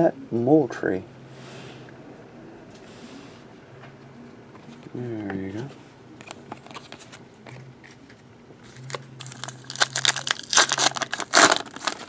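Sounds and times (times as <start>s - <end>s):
card pack wrapper crinkling: 8.7s - 12.0s.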